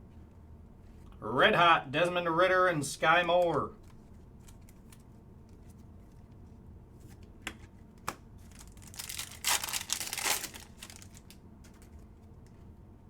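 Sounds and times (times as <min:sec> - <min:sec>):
wrapper torn open and crinkled: 0:08.4 - 0:11.4.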